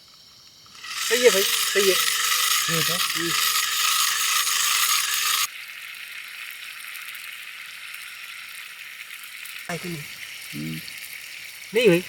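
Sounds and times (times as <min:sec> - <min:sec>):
person speaking: 0:00.9 - 0:04.0, 0:09.7 - 0:10.8, 0:11.8 - 0:12.0
chicken sizzling in a pan: 0:05.5 - 0:12.0.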